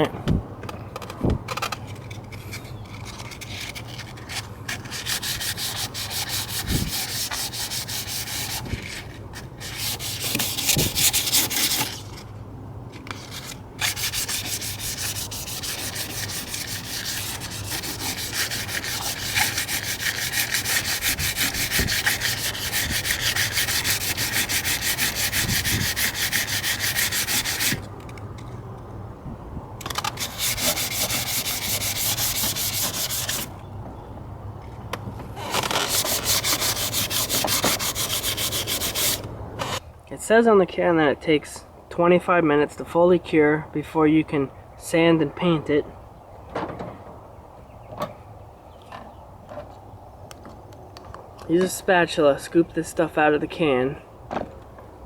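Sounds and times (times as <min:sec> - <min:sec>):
sandpaper rubbing: 0:02.9 - 0:12.2, 0:13.1 - 0:27.8, 0:30.0 - 0:33.5, 0:35.4 - 0:39.2.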